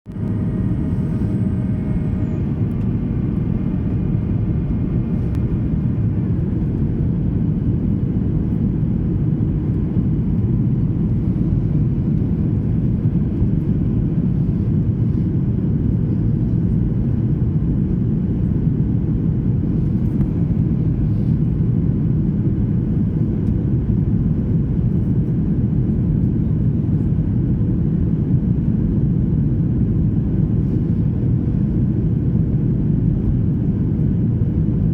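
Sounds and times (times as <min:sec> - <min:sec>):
faint steady tones: 0:00.1 - 0:07.1
jet engines rumbling: 0:00.1 - 0:28.0.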